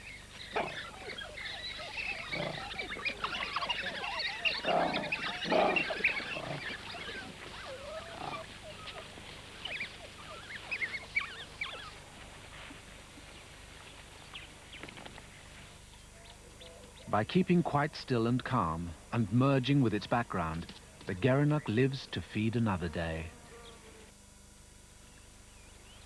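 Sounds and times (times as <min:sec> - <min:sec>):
dogs yelping: 0:00.4 - 0:12.0
wild dog puppies squealing: 0:00.4 - 0:12.0.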